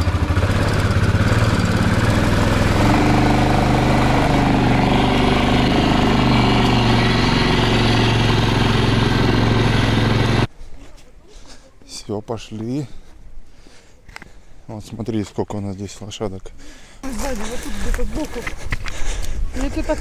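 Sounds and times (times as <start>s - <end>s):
small vehicle engine running: 0.0s - 10.5s.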